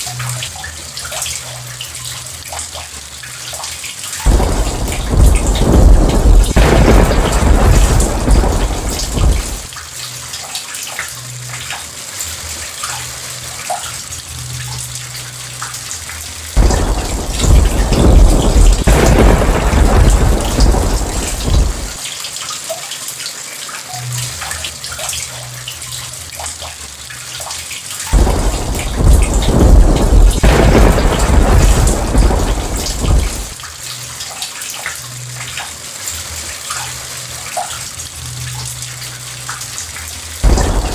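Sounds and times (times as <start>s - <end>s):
steady rain falling: 0.0s - 40.9s
rolling thunder: 4.3s - 9.7s, 16.6s - 22.0s, 28.1s - 33.6s, 40.4s - 40.9s.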